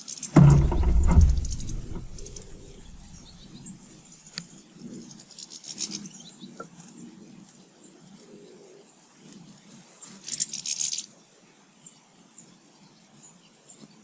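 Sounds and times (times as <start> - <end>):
heavy bump: 0.4 - 3.6
scraping rumble: 0.4 - 3.7.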